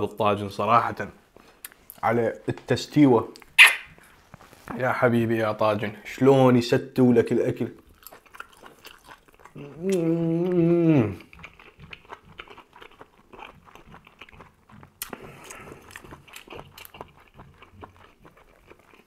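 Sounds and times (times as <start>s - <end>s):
close-up chewing and biting: 7.8s - 19.0s
man humming with enjoyment: 9.6s - 11.2s.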